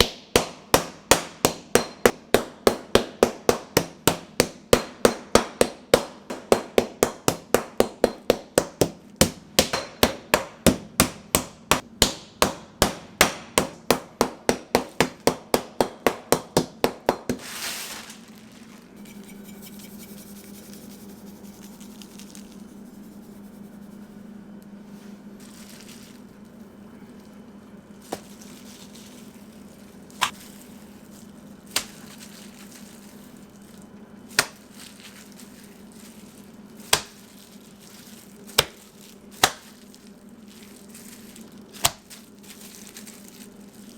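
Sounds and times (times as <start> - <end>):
meat mallet pounding on board: 0.0 - 17.4
low steady hum: 0.0 - 43.9.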